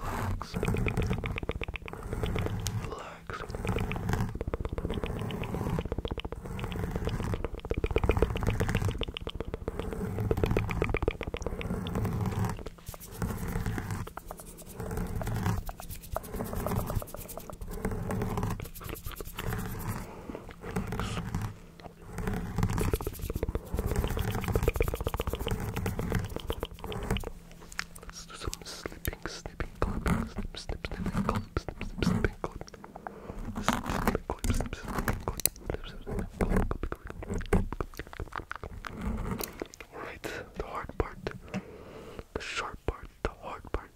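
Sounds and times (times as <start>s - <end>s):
wet mouth clicks and smacks: 0.4s - 2.8s, 3.4s - 21.2s, 22.6s - 32.9s, 36.7s - 39.9s.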